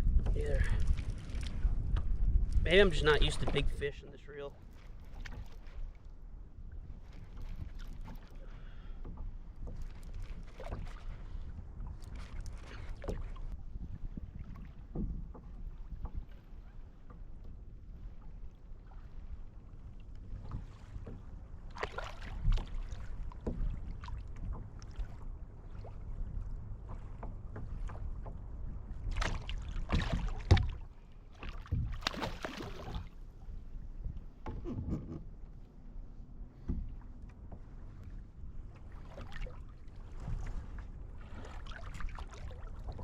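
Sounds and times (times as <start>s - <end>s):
wind on microphone: 0.0s - 3.9s, 9.6s - 18.3s, 31.5s - 43.0s
water splashing against kayak: 0.0s - 43.0s.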